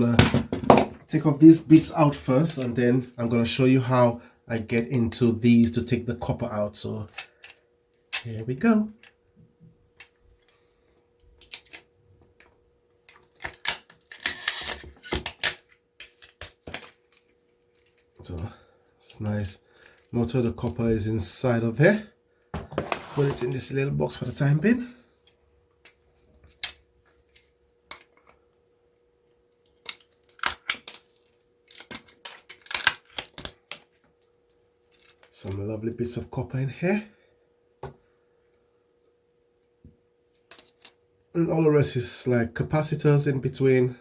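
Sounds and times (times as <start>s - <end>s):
faint steady hum: 0.0s - 44.0s
small parts clicking and rattling: 13.1s - 18.2s, 29.6s - 35.3s.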